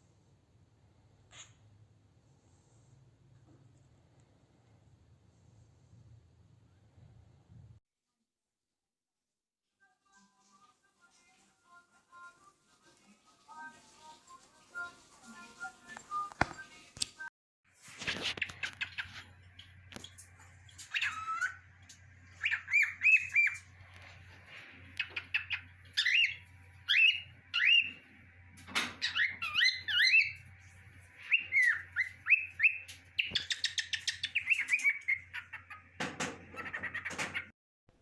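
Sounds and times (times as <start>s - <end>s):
cockatiel whistling: 20.8s - 21.6s, 22.4s - 23.6s, 25.0s - 28.0s, 29.0s - 30.4s, 31.2s - 35.5s.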